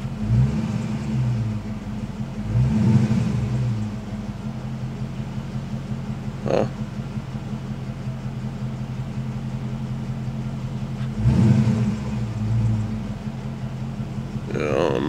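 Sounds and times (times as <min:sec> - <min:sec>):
car engine idling: 0:00.0 - 0:15.0
engine rev: 0:00.0 - 0:15.0.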